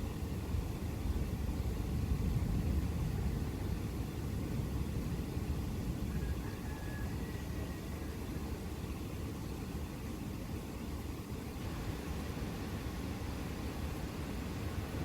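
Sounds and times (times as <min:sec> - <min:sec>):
faint rain hiss: 0:11.2 - 0:15.0.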